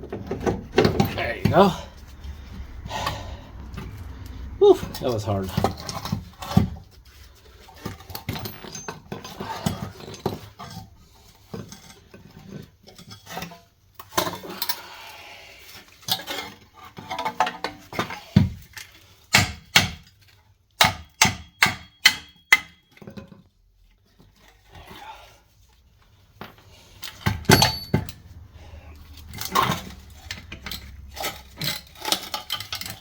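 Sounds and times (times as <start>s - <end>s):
metal parts clanking: 7.7s - 10.9s, 26.3s - 28.4s, 29.0s - 33.0s.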